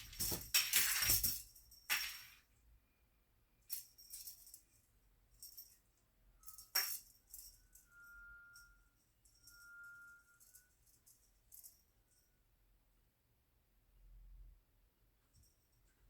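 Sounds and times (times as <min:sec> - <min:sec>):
cat toy jingling and rattling: 0:00.0 - 0:02.4.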